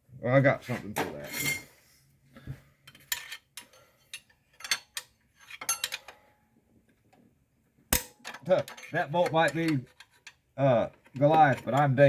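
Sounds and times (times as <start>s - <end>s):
metal hand tools clinking: 3.1s - 6.2s, 8.0s - 10.4s.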